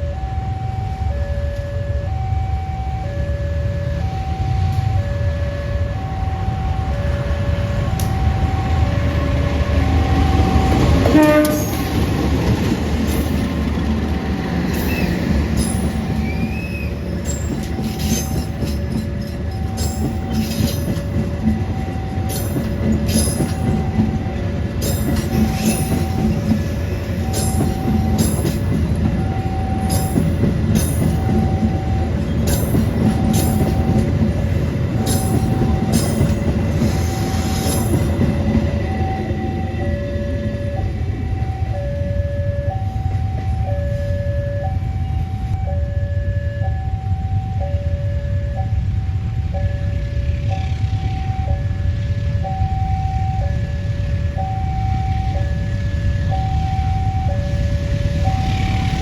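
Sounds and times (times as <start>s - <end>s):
two-tone electronic warning signal: 0.0s - 12.5s, 13.1s - 59.0s
diesel locomotive rumble: 0.0s - 59.0s
wheels clacking over rail joints: 7.8s - 40.4s
train horn: 10.7s - 12.0s.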